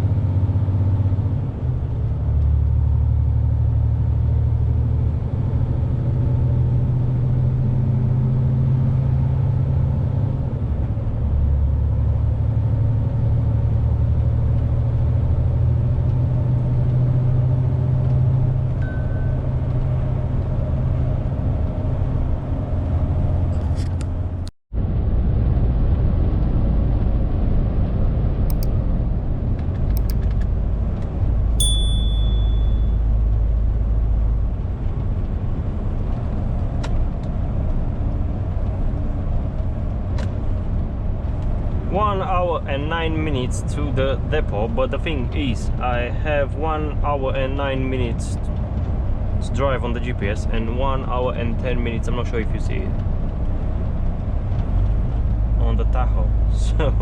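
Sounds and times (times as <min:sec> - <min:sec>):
lorry engine and road drone: 0:26.2 - 0:57.0.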